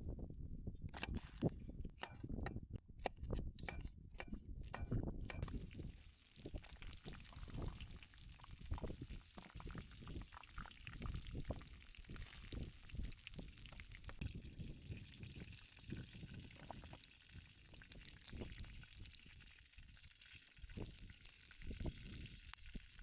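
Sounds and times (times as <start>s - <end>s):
liquid pouring and trickling: 5.4s - 23.0s.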